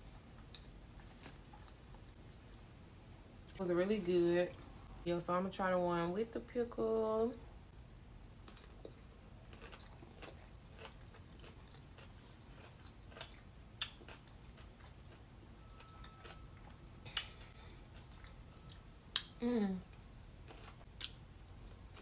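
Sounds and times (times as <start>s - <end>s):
person chewing food: 8.0s - 22.0s.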